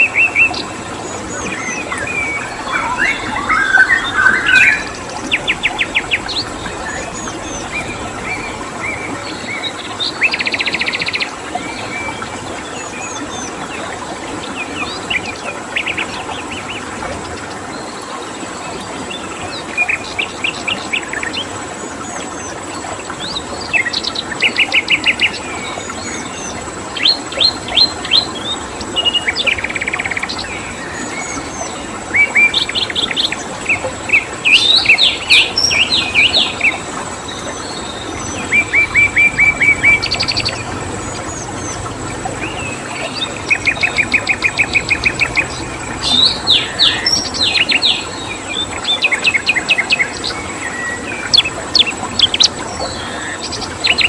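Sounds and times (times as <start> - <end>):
flowing stream water: 0.0 - 54.0
songbirds chirping and trilling: 0.0 - 54.0
high cricket tone: 24.3 - 26.8, 30.6 - 48.4.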